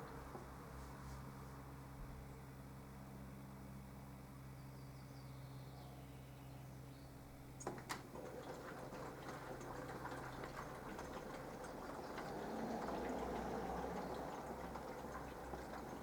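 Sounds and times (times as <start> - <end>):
washing machine hum: 7.2 - 16.0
water splashing and sloshing: 7.6 - 16.0.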